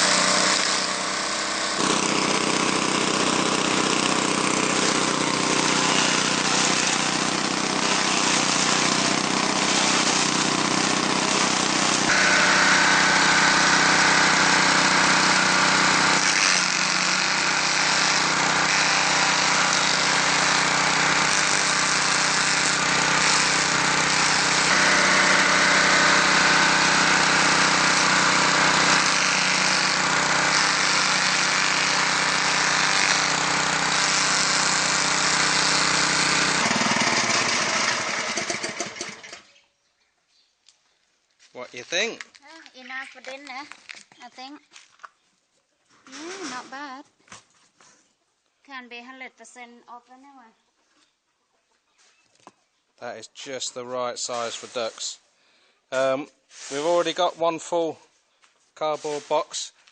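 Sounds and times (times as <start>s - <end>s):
shredder chopping stems: 0.0s - 39.4s, 56.0s - 57.3s
small petrol engine running: 0.0s - 39.6s.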